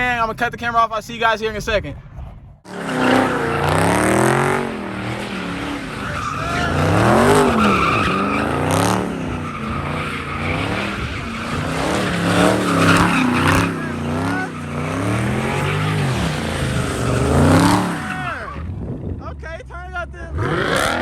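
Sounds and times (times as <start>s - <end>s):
tyres squealing: 2.7s - 18.7s
car engines revving hard: 2.7s - 19.2s, 20.3s - 21.0s.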